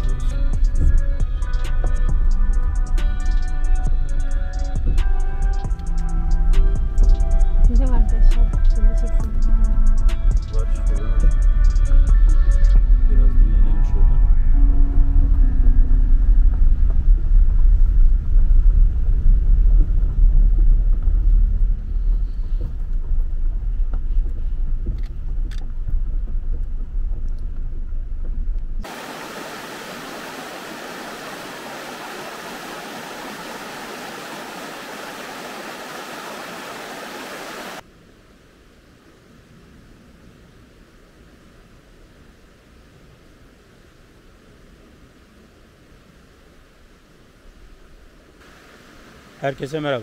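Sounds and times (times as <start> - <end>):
steady hiss: 0.0 - 12.9, 28.8 - 50.0
vehicle rumbling: 0.0 - 35.8.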